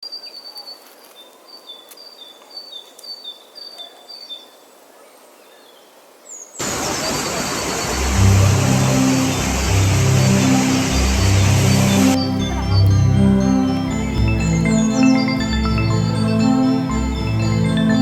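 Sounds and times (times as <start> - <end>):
loud music with bass line: 9.4 - 18.0.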